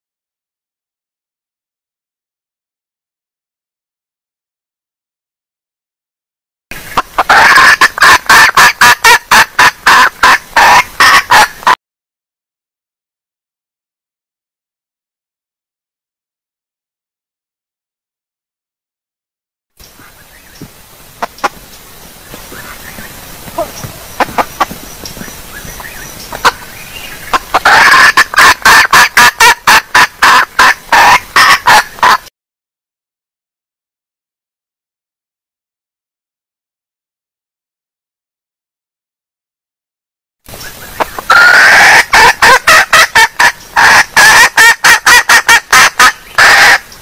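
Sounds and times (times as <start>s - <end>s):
hen clucking: 6.8s - 11.8s, 20.0s - 21.6s, 22.3s - 32.3s, 40.6s - 46.9s.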